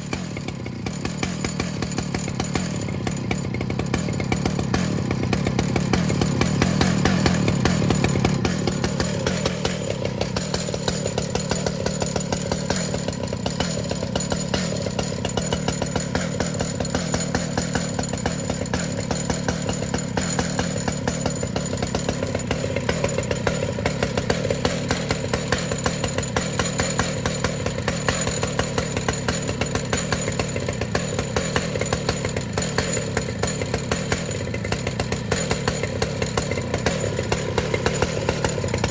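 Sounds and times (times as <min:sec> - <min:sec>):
chainsaw cutting through log: 0:00.0 - 0:38.9.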